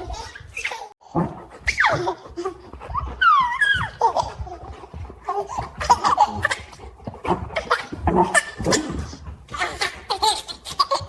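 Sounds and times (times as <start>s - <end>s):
baby laughing: 1.9s - 6.8s, 9.6s - 11.0s.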